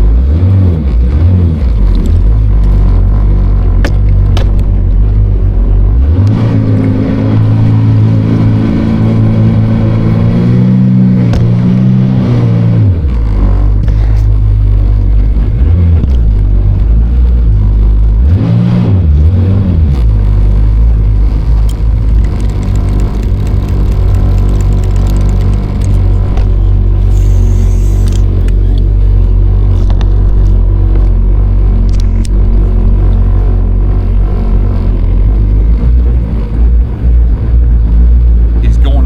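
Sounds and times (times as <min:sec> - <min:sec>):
jet ski engine: 0:00.0 - 0:39.0.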